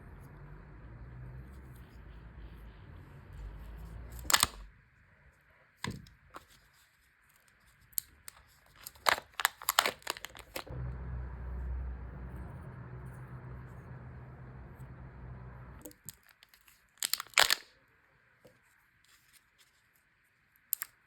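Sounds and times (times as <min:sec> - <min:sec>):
sharp plastic clicks and crackles: 0:04.1 - 0:04.7, 0:07.4 - 0:10.7, 0:15.8 - 0:17.8, 0:20.6 - 0:21.0
packaging tearing: 0:04.2 - 0:04.6, 0:08.0 - 0:10.7, 0:16.1 - 0:17.7.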